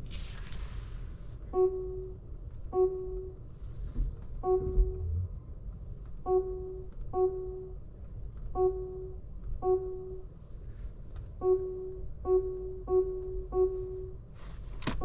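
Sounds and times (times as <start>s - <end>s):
low road rumble: 3.8s - 6.7s
electronic warning chime: 4.4s - 5.1s.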